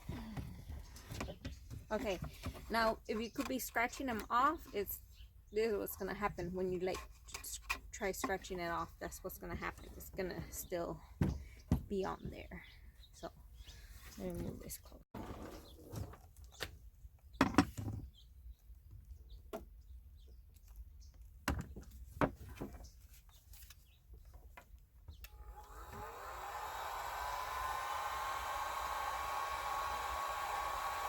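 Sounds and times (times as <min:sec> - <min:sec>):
hot-air blower whirring: 0:25.3 - 0:31.0.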